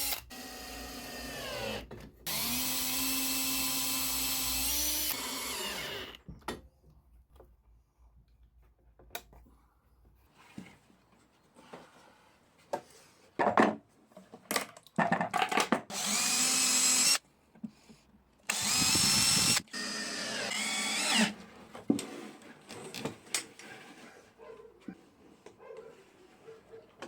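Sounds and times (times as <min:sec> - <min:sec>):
power drill whine: 0:00.0 - 0:06.2, 0:15.9 - 0:17.2, 0:18.5 - 0:21.4
knocks and clatter of wood: 0:13.4 - 0:15.9.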